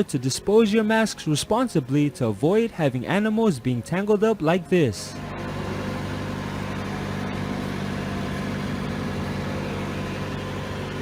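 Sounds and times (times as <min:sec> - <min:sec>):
engine idling: 0:05.1 - 0:11.0.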